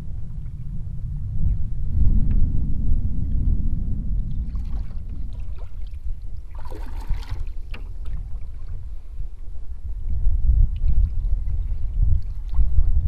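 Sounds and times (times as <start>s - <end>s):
wind rumble on microphone: 0.0s - 13.0s
paddle splashing through water: 4.4s - 9.1s.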